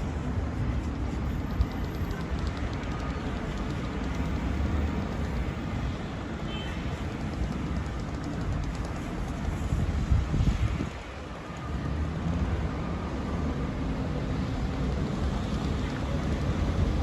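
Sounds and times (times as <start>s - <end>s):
city traffic rumble: 0.0s - 17.0s
wind buffeting microphone: 7.4s - 11.2s.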